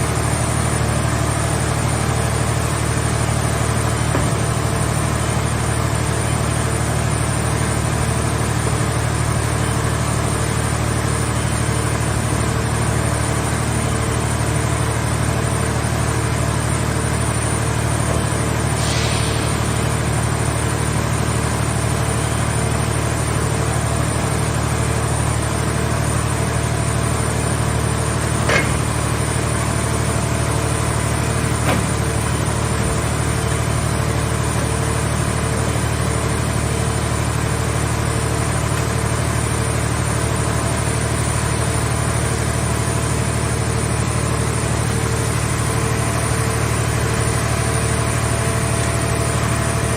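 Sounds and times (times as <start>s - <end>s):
power unit engine humming: 0.0s - 49.9s
brief hiss: 18.8s - 19.8s.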